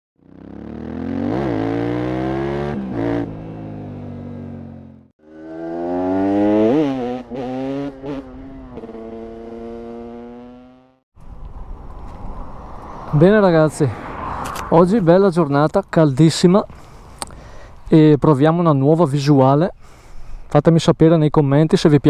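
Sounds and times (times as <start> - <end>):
motorcycle engine accelerating: 0.2 - 13.2.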